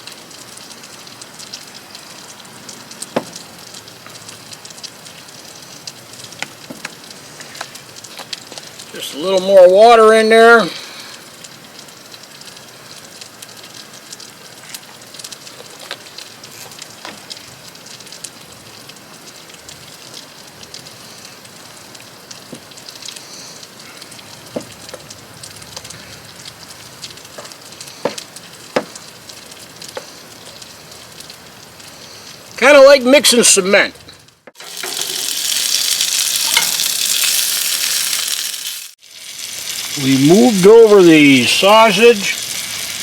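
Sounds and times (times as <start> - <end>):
food sizzling in a pan: 34.5 - 43.0.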